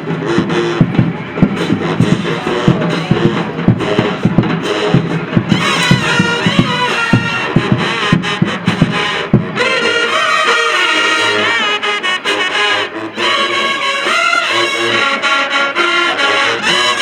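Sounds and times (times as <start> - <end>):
marching band playing: 0.0 - 17.0
heavy drum hits: 0.1 - 9.8.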